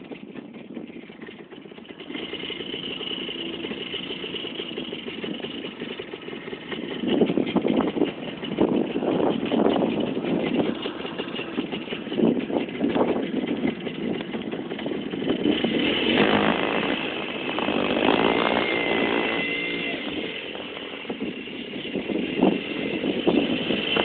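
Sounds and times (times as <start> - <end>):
two-stroke motorcycle engine running: 0.0 - 24.0.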